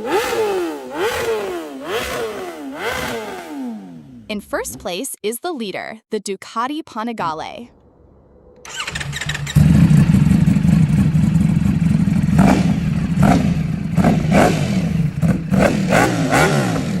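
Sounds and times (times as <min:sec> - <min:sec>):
motorcycle engine revving: 0:00.0 - 0:04.8, 0:08.7 - 0:17.0.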